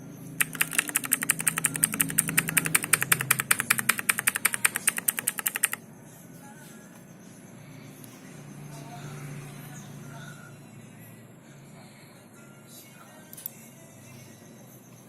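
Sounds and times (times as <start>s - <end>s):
rapid even clicking: 0.4s - 5.8s.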